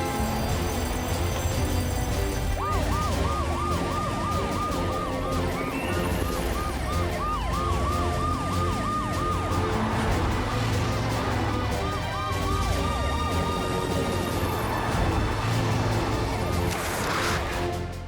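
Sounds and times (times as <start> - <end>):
background music: 0.0 - 18.0
cartoon siren yelp: 2.5 - 10.2.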